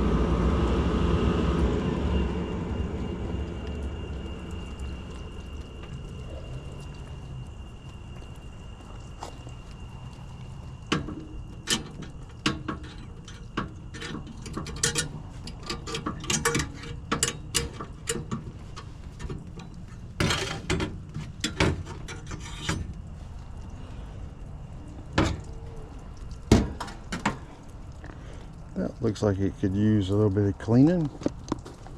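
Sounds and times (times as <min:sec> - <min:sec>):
steady low hum: 0:00.0 - 0:30.6
hand tools and metal parts clattering: 0:10.9 - 0:23.0.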